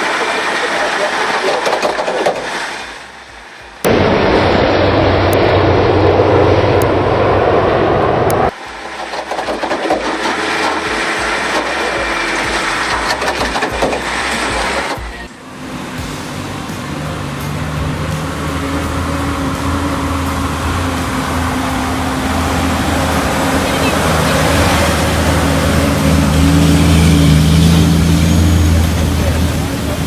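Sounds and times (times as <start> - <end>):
heavy machinery rumbling: 3.8 - 30.0
strong low hum: 3.9 - 8.6, 10.9 - 30.0.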